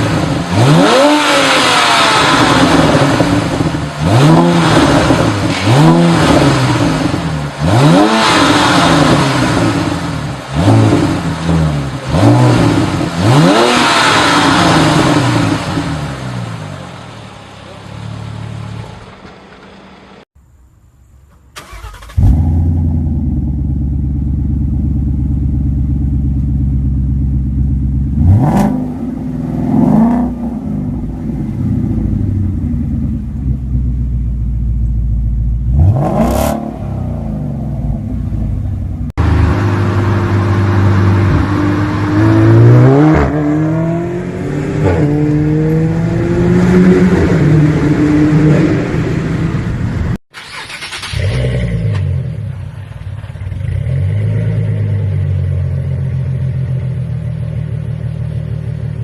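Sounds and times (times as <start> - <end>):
engine revving: 0.0 - 17.1, 21.6 - 25.2, 26.2 - 32.4, 35.6 - 55.8
car engine with loud exhaust: 0.0 - 59.0.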